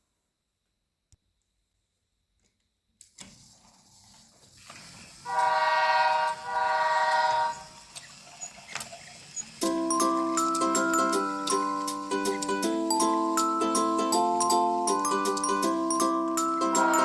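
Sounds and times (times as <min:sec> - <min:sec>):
toy train motor and rolling: 0:03.1 - 0:17.0
recorded train horn hoots: 0:05.3 - 0:07.9, 0:16.5 - 0:17.0.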